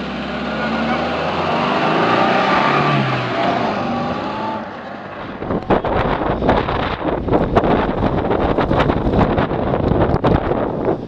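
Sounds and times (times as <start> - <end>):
car engine revving hard: 0.0 - 6.3
wind buffeting the microphone: 5.2 - 11.0.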